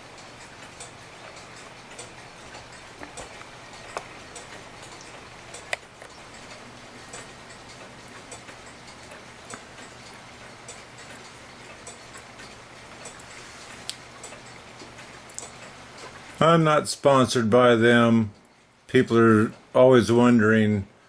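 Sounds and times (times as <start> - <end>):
mechanical clock ticking: 0.0 - 20.4
sharp clicks: 13.9 - 15.7.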